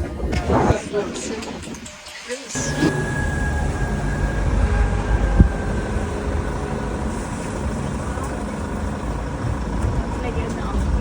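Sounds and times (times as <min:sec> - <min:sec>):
vehicle rumbling: 0:02.4 - 0:11.0.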